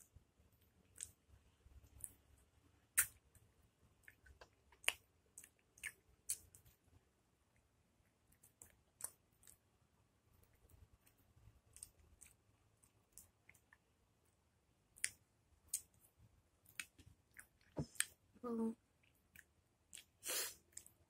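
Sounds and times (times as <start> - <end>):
wet mouth clicks and smacks: 3.0 - 3.2, 4.0 - 6.5, 15.0 - 16.0.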